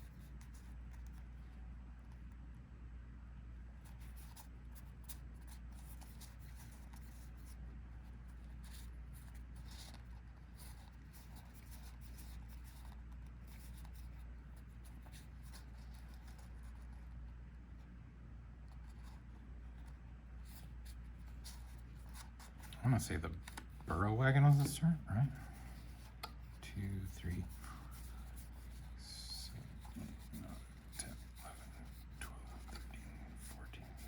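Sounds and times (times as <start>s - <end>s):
low steady hum: 0.0s - 34.0s
trading cards sliding and ticking: 18.7s - 34.0s.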